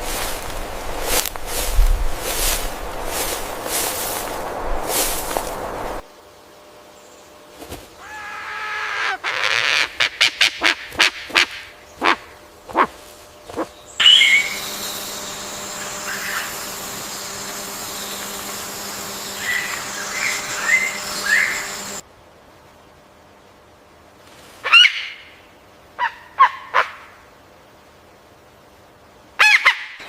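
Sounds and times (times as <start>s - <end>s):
steady hiss: 0.0s - 6.7s, 10.9s - 26.0s
high bird chirps: 14.0s - 15.0s, 19.3s - 21.9s.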